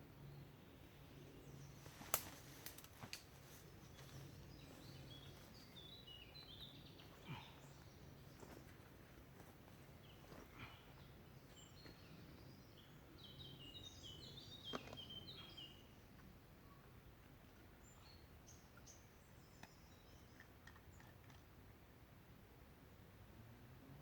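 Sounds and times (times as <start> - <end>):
high chirping birdsong: 3.5 - 9.2, 9.8 - 21.1.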